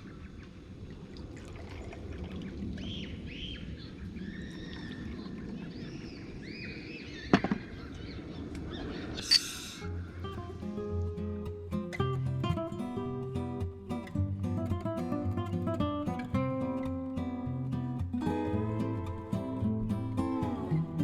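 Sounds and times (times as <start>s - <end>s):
birds chirping: 2.6s - 11.3s
sharp knock: 7.3s - 7.6s.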